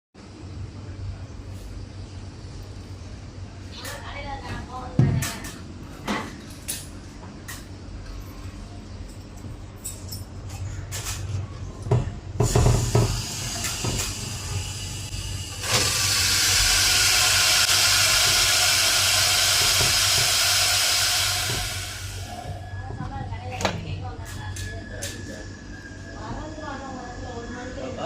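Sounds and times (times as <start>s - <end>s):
compressed gas hissing: 12.4s - 22.6s.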